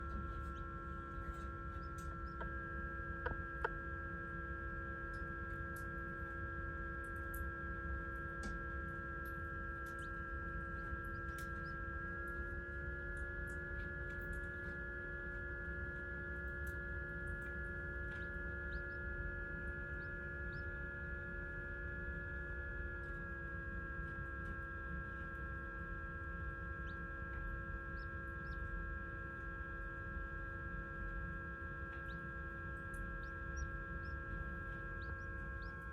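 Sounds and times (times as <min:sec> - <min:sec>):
electrical hum: 0:00.0 - 0:35.9
faint high peeps: 0:01.2 - 0:03.7, 0:33.0 - 0:35.9.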